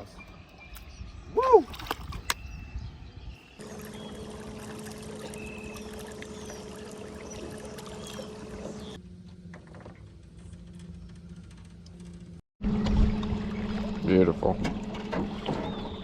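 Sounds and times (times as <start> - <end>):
water rushing around boat: 3.6 - 9.0, 12.7 - 16.0
steady low hum: 3.6 - 9.5.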